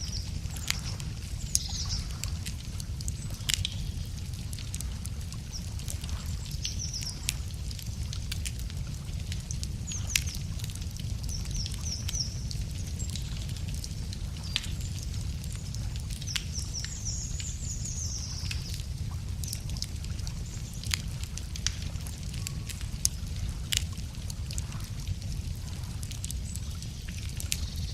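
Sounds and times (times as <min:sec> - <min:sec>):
small birds chirping: 0:00.0 - 0:07.9, 0:09.6 - 0:21.3, 0:26.0 - 0:27.9
campfire crackling and popping: 0:00.0 - 0:27.9.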